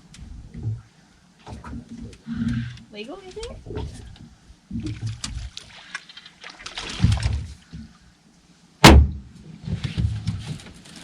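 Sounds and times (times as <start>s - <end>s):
sharp loud knock: 8.8s - 9.3s
handling and knocking on boat: 8.8s - 10.8s.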